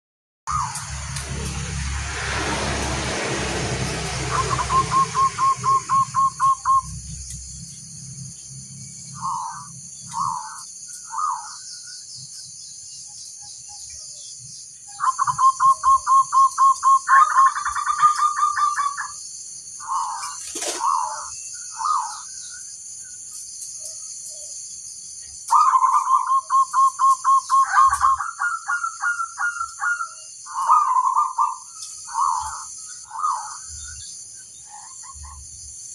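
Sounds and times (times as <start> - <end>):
dove cooing: 4.3 - 6.9, 15.0 - 19.1, 19.8 - 22.2, 25.5 - 33.8.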